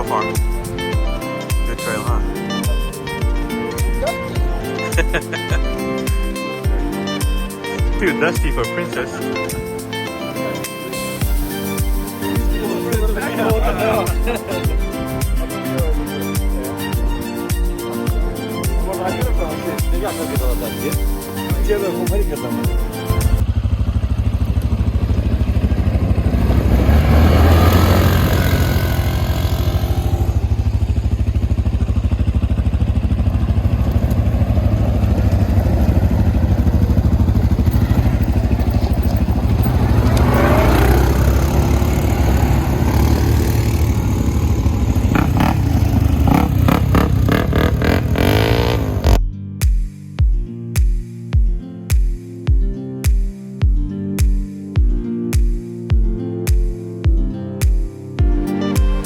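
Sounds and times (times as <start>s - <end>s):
atv engine under throttle: 23.2s - 49.2s.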